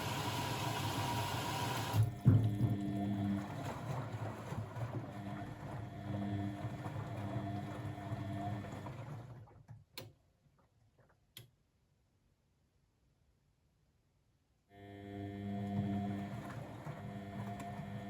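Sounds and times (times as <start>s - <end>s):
washing machine running: 0.0s - 9.7s, 15.2s - 18.0s.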